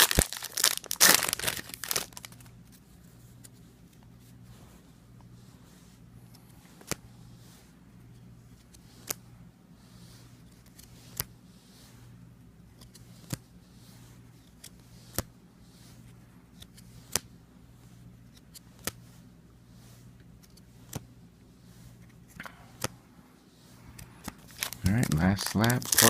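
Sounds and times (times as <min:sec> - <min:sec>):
steady low hum: 0:00.0 - 0:26.0
trading cards clicking: 0:24.0 - 0:26.0.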